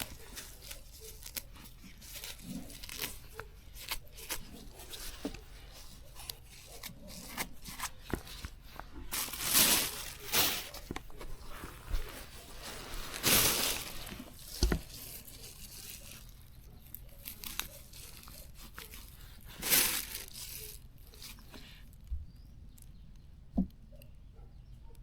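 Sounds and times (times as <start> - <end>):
grass being pulled by hand: 0.0 - 16.4.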